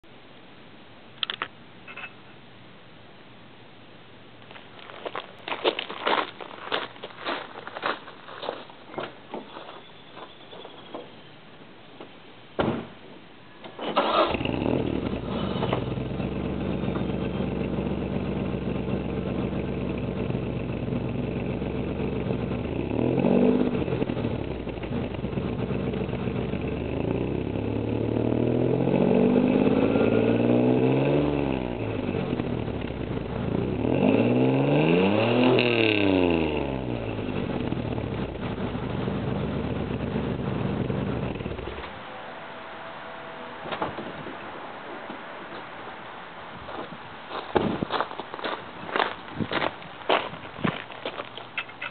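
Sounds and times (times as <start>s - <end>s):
car engine starting and idling: 13.5s - 46.6s
car engine revving: 13.9s - 46.2s.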